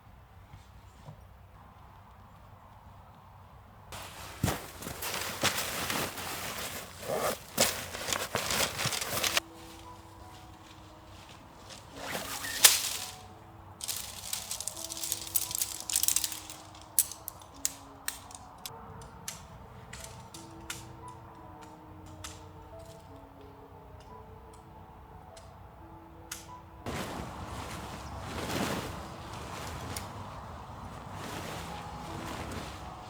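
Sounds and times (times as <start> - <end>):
soft slow background music: 1.3 - 33.0
rustling and crackling handling: 4.0 - 21.1, 26.9 - 33.0.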